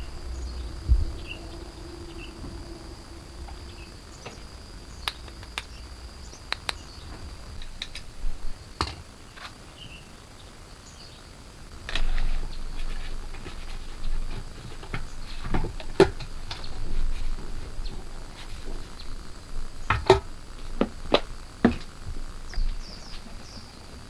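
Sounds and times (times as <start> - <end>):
faint high-pitched tone: 0.0 - 8.6.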